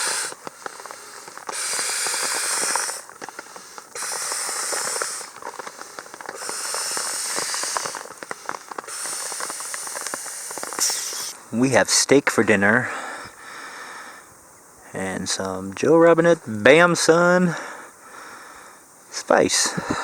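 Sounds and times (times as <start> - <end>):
small crinkling clicks: 0.0 - 11.4
sleeping bag rustling: 0.0 - 11.5.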